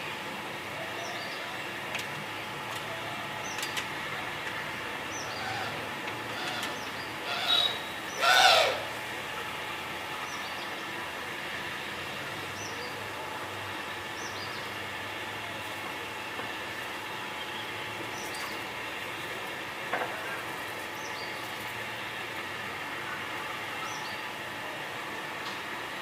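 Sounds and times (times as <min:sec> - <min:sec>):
steady background hum: 0:00.0 - 0:26.0
birds chirping: 0:05.1 - 0:08.9
bird call falling in pitch: 0:06.4 - 0:08.8.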